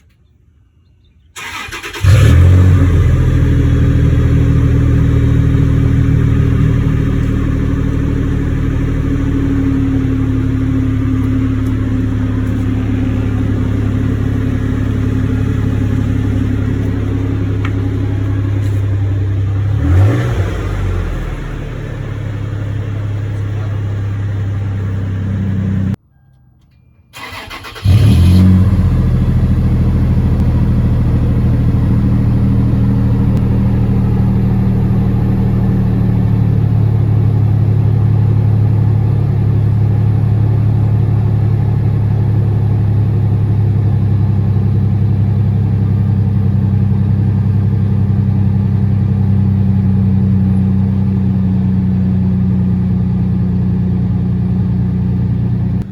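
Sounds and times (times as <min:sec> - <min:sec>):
engine cranking and starting: 0:01.4 - 0:03.4, 0:27.1 - 0:29.3
car engine idling: 0:01.4 - 0:26.0, 0:27.2 - 0:55.9
car engine running: 0:01.4 - 0:26.0, 0:27.2 - 0:55.9.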